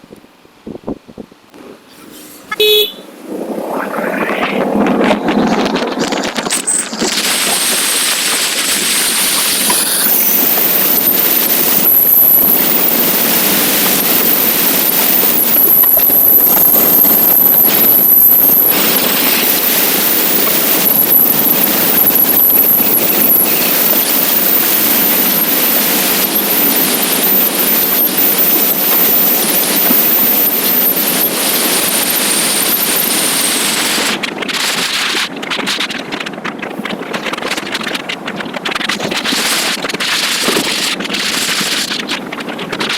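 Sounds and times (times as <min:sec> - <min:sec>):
wind buffeting microphone: 0:00.0 - 0:01.6, 0:02.5 - 0:42.9.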